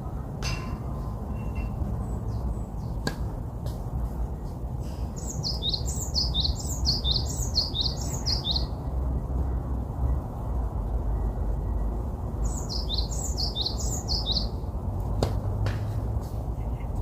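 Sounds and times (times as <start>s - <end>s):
steady low rumble: 0.0s - 17.0s
songbird singing: 0.1s - 10.2s, 11.0s - 15.2s, 16.2s - 17.0s
bird chirps: 4.9s - 8.8s, 12.4s - 14.6s.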